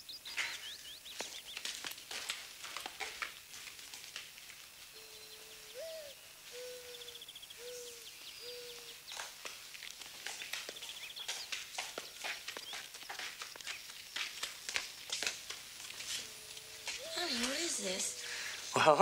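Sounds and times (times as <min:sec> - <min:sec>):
birds chirping: 0:00.0 - 0:03.5, 0:04.6 - 0:19.0.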